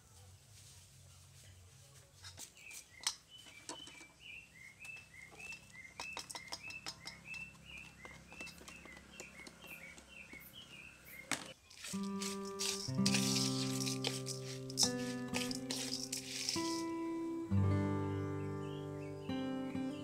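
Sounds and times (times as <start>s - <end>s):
bird chirping: 2.3s - 20.0s.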